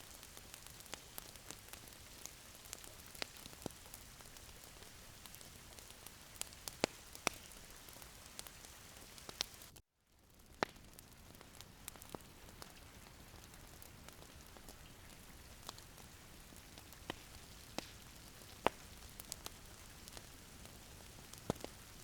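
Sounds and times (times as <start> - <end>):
fire crackling and popping: 0.0 - 22.0
fire hissing: 0.2 - 9.8, 15.1 - 22.0.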